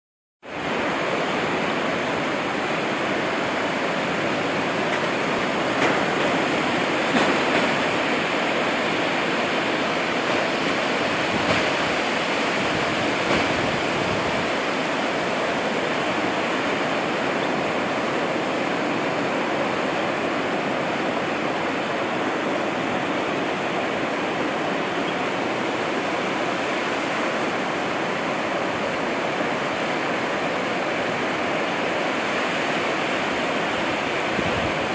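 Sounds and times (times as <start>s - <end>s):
ocean surf: 0.4s - 34.9s
rain: 0.4s - 34.9s.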